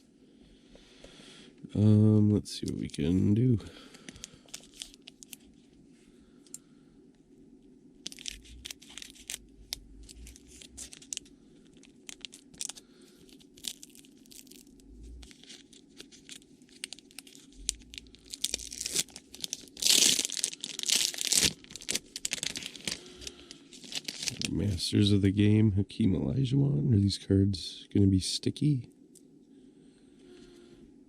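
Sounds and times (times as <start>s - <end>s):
card pack wrapper tearing and crinkling: 4.0s - 5.5s, 8.0s - 24.8s.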